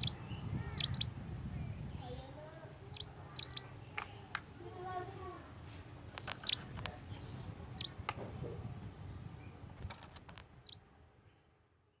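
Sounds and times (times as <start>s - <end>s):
bird high chirps: 0.0s - 1.2s, 2.9s - 4.3s, 6.2s - 8.0s, 10.4s - 11.4s.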